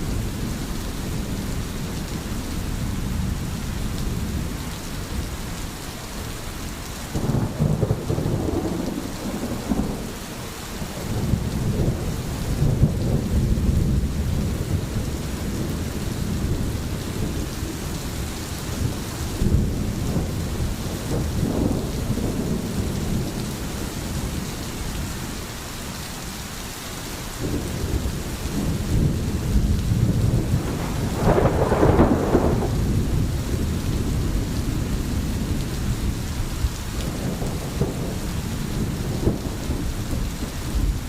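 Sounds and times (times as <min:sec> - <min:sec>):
steady rain: 0:00.0 - 0:41.0
thunder rumbling: 0:07.1 - 0:25.4, 0:27.4 - 0:41.0.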